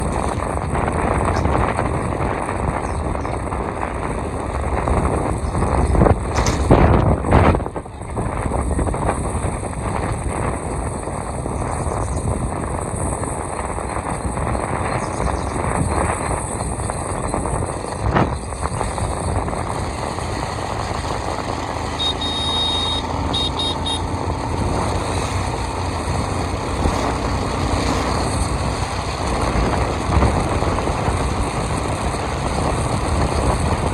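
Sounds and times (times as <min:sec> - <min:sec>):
motorcycle riding: 0:00.0 - 0:33.9
high beeps: 0:21.8 - 0:24.2.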